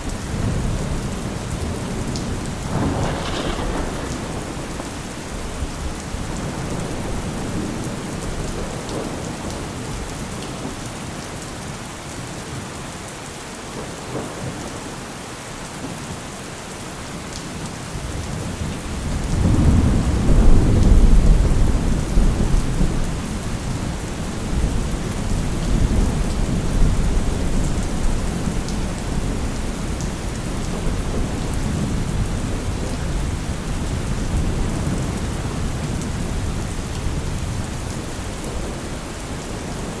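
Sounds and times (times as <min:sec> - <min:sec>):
steady rain falling: 0:00.0 - 0:40.0
thunder rolling: 0:00.3 - 0:09.3, 0:18.9 - 0:38.8.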